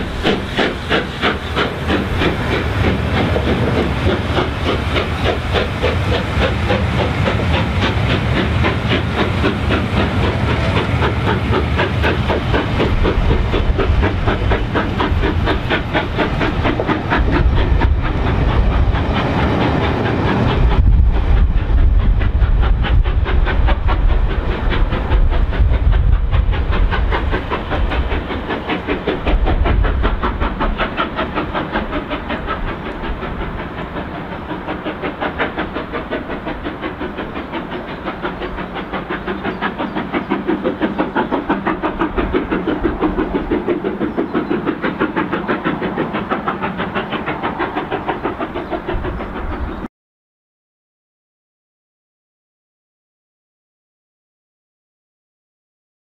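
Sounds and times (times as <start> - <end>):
locomotive steam hiss: 0.0 - 49.8
low train rumble: 0.0 - 49.9
train wheels clattering on rails: 0.0 - 49.9.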